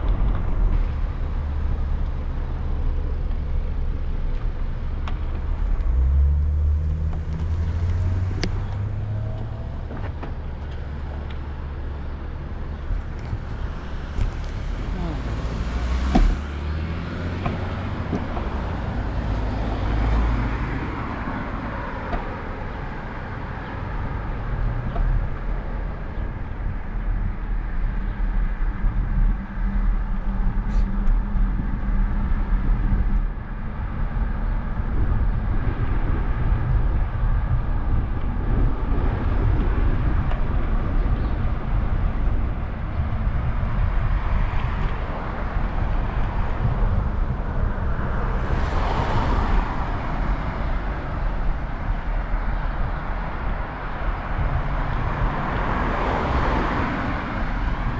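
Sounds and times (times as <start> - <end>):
road traffic rumble: 0.0 - 57.9
vehicle passing close: 5.4 - 24.0, 44.0 - 57.9.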